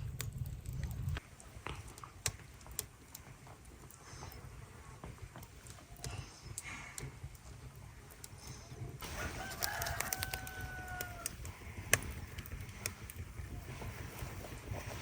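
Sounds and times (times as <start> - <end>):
rooster crowing: 9.0 - 11.4.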